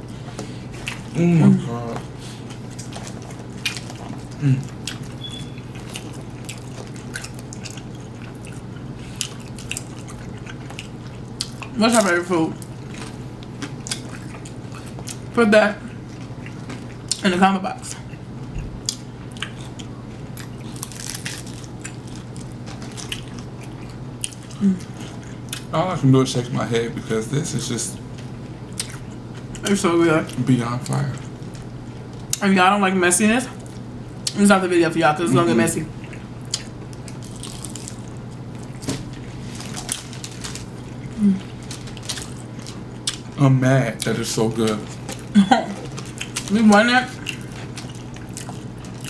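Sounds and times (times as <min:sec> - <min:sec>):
chewing crisp tortilla crunches: 0:02.4 - 0:17.2, 0:18.0 - 0:25.7, 0:36.0 - 0:43.4, 0:44.0 - 0:49.0
person humming: 0:04.4 - 0:04.7, 0:24.6 - 0:24.9, 0:41.2 - 0:41.4.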